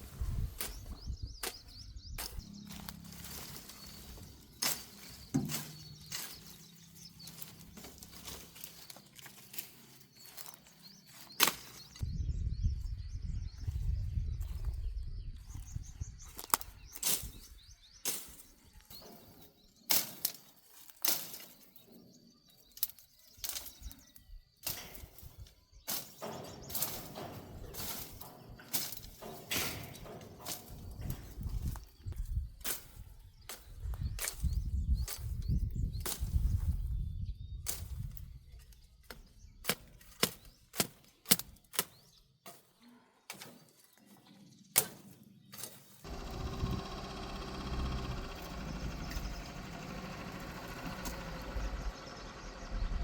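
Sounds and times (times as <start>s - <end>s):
hand tools knocking on metal: 4.0s - 6.7s, 26.0s - 31.4s
low rumbling noise: 46.1s - 53.0s.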